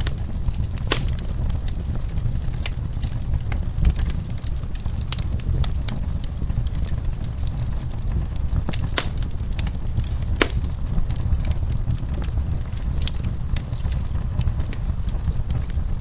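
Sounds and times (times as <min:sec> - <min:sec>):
fire crackling and popping: 0:00.9 - 0:01.4, 0:09.0 - 0:10.9.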